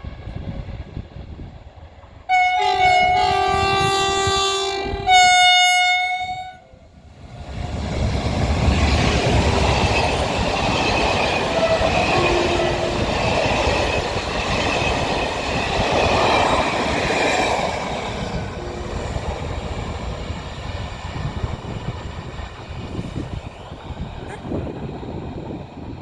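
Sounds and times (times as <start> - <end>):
train wheels running over rails: 7.0 - 26.0.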